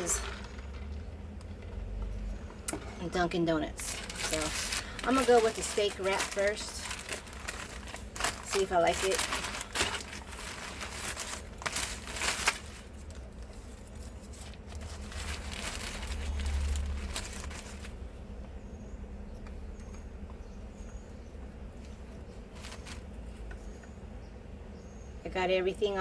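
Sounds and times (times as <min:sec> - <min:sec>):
paper wrapper crinkling: 0:03.6 - 0:18.0, 0:22.5 - 0:23.1.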